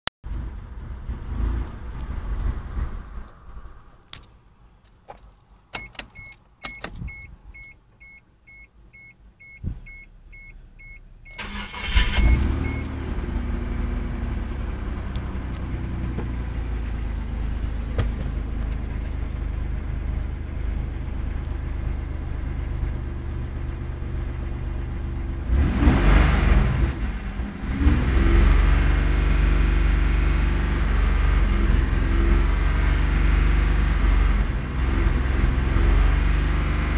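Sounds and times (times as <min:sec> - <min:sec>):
clicks: 0:04.1 - 0:08.1
car engine cranking and running: 0:04.8 - 0:08.2, 0:09.4 - 0:36.9
vehicle warning chime beeping: 0:05.7 - 0:13.0.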